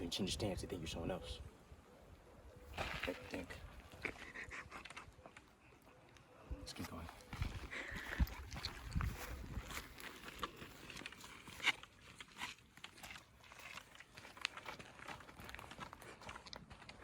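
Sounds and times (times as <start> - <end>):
footsteps crunching on dry trail: 6.8 - 17.0.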